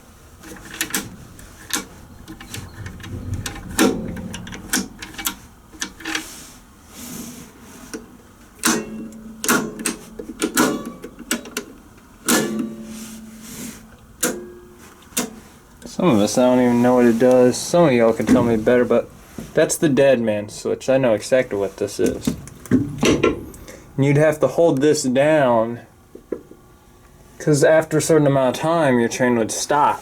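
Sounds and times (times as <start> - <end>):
controls clicking and clunking: 0.4 - 6.4, 21.8 - 23.8.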